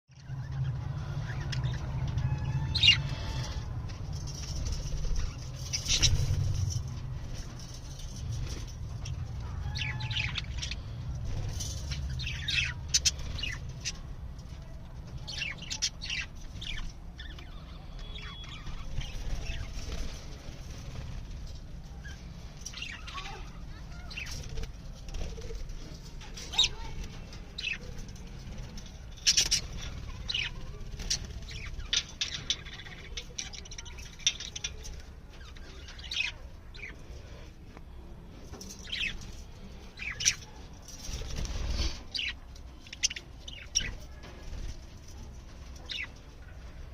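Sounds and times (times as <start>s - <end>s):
wings flapping: 41.0s - 42.1s.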